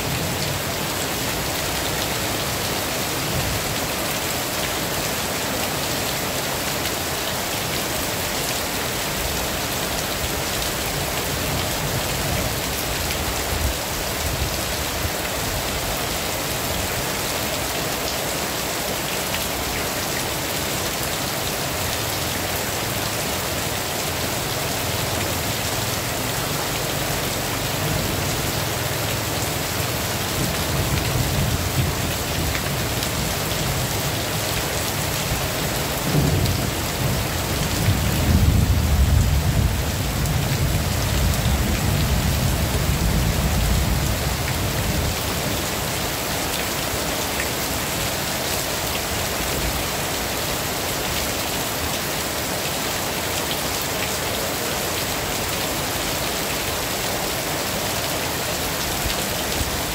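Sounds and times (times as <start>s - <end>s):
heavy rain falling: 0.0s - 59.9s
low rumble of thunder: 36.1s - 44.2s.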